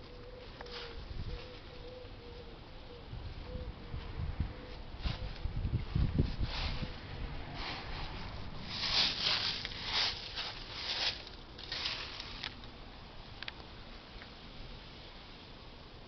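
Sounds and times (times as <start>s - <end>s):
gusty wind: 3.1s - 11.0s.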